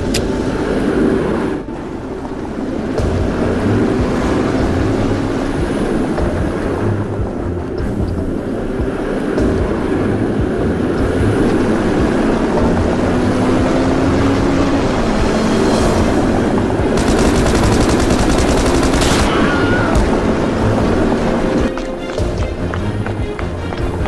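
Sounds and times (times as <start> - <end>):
train running on rails: 0.0 - 24.0
rapid automatic gunfire: 17.0 - 19.6.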